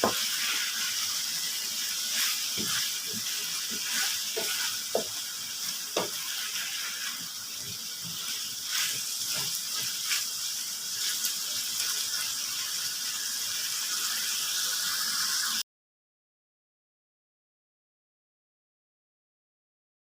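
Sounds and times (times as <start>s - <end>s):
liver sizzling in a frying pan: 0.0s - 15.6s
spoon knocking on pan: 4.3s - 5.2s, 6.0s - 6.2s.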